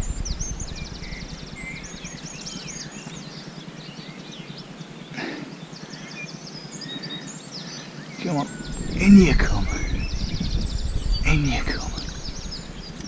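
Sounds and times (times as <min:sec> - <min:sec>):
songbirds singing and twittering: 0:00.0 - 0:13.0.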